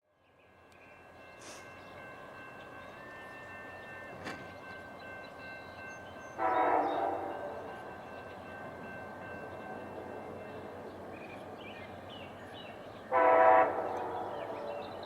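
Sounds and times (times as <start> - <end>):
train running: 0.3 - 15.0
train horn blast: 6.4 - 7.8, 13.1 - 15.0.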